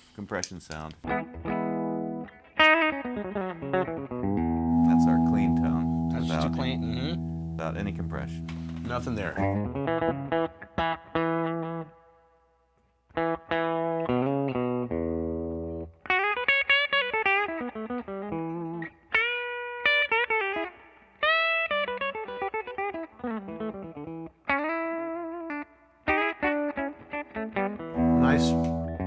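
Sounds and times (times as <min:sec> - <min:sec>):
clean electric guitar: 0:01.0 - 0:12.2, 0:13.1 - 0:29.0.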